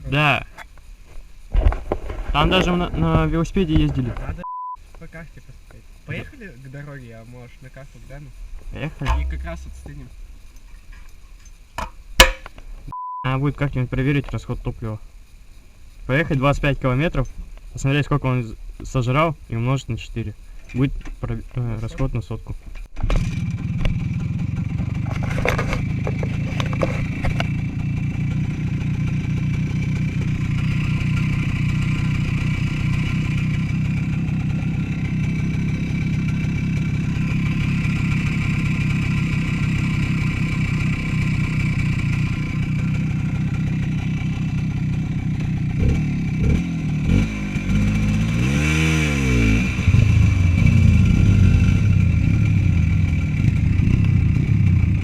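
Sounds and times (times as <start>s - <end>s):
small motorcycle engine running: 23.0s - 55.0s.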